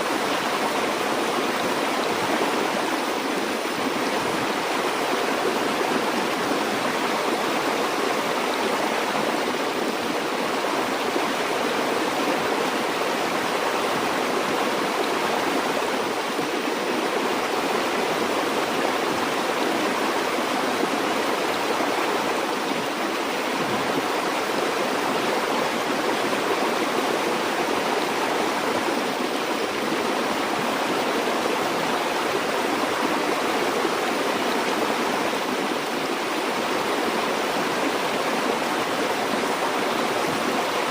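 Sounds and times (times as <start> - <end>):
stream flowing over rocks: 0.0 - 40.9.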